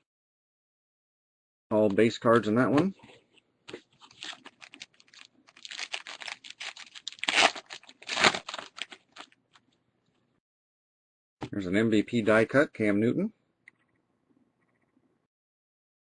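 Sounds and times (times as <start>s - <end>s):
foil wrapper crinkling: 3.9s - 9.6s.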